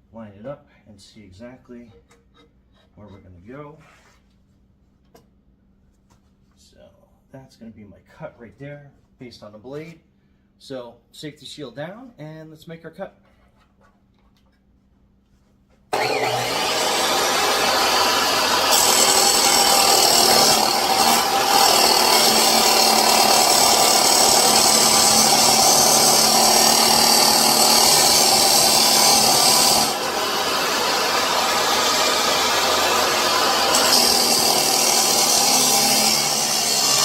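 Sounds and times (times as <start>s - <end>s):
chop saw motor running: 15.9s - 37.0s.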